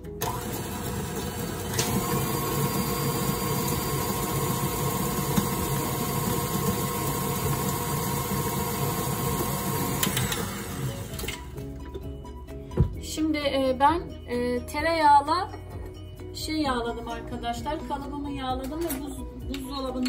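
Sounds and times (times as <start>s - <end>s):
electric kitchen mixer running: 0.0s - 11.5s.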